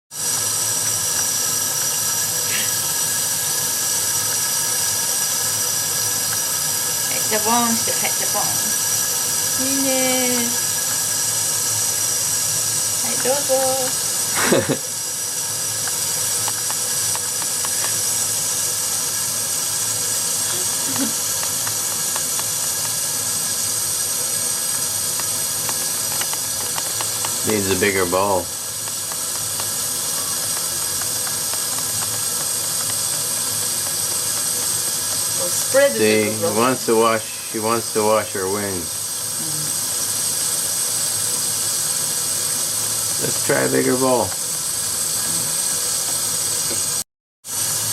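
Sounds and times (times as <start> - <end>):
tap running: 0.1 - 47.0
tap running into sink: 25.1 - 35.7.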